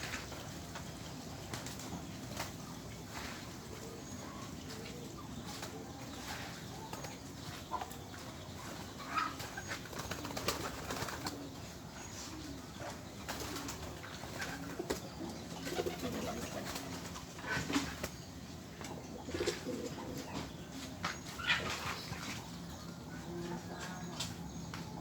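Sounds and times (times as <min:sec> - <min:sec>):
pigeons cooing: 0:08.9 - 0:20.8.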